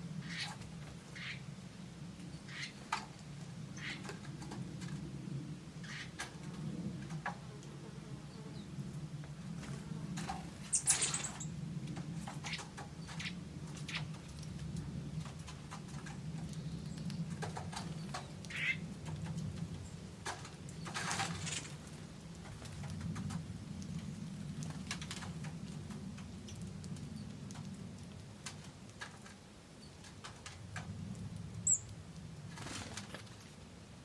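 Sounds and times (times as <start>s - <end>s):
birds chirping: 0.2s - 1.5s, 2.2s - 3.0s, 3.7s - 4.3s, 10.6s - 11.6s, 15.6s - 18.9s, 31.6s - 31.9s.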